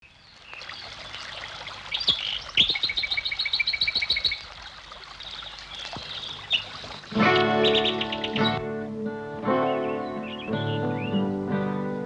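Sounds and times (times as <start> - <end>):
birds chirping: 0.0 - 8.8, 9.4 - 11.5
bird trilling: 1.9 - 4.4, 5.8 - 8.6.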